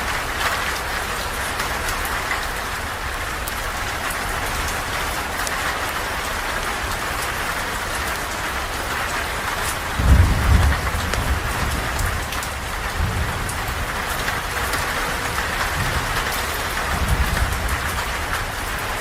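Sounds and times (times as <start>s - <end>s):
steady rain falling: 0.0s - 19.0s
low rumble of thunder: 9.2s - 19.0s.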